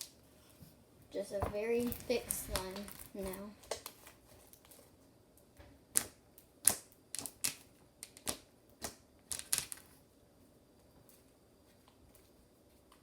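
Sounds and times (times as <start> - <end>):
slime kneading clicks and pops: 5.9 - 9.8.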